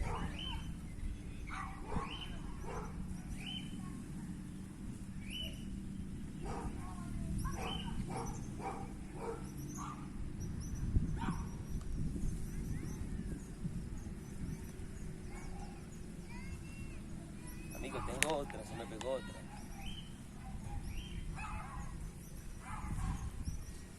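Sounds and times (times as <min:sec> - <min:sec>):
dog barking: 0:00.0 - 0:00.6, 0:01.5 - 0:03.0, 0:06.4 - 0:10.0, 0:15.3 - 0:15.8, 0:19.4 - 0:22.0, 0:22.6 - 0:23.2.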